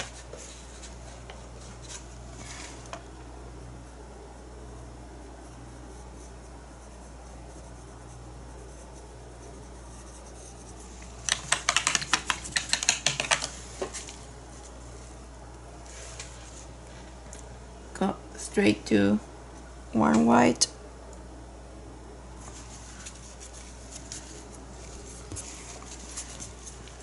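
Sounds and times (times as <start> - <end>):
steady low hum: 0.0 - 27.0
small sharp clicks and scratches: 8.8 - 14.2.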